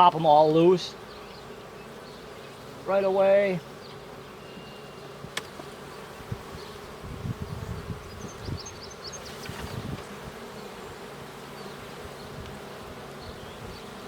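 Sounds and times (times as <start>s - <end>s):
bees humming: 0.0s - 14.0s
hive frames knocking and scraping: 5.2s - 11.0s.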